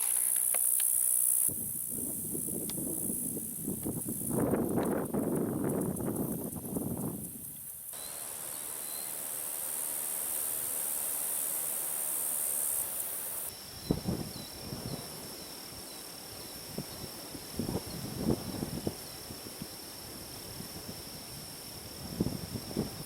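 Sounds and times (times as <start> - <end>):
insect high buzz: 0.0 - 23.0
insect trill with chirps: 0.0 - 23.0.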